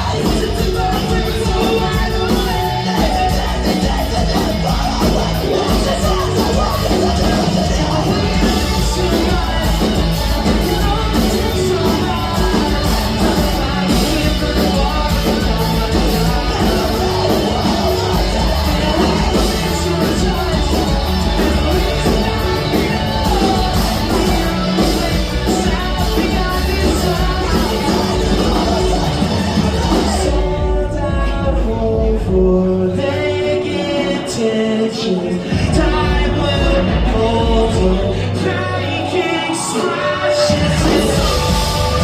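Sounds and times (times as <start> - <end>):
shouted vocals: 0.0 - 30.9
loud rock music: 0.0 - 42.0
person singing: 0.0 - 42.0.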